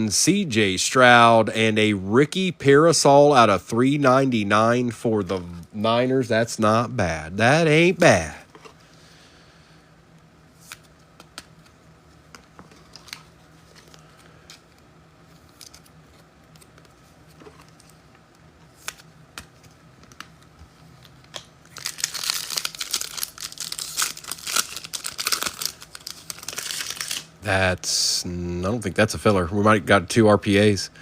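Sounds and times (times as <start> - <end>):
plastic wrapper crinkling and tearing: 21.3 - 27.4.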